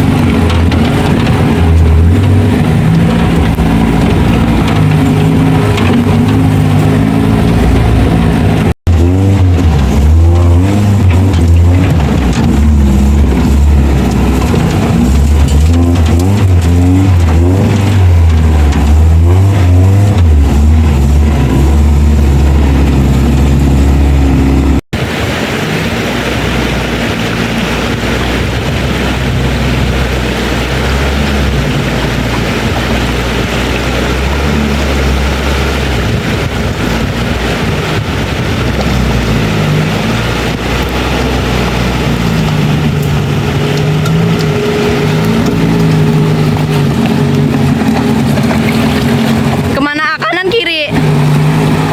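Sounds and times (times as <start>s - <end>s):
off-road engine revving: 0.0s - 51.9s.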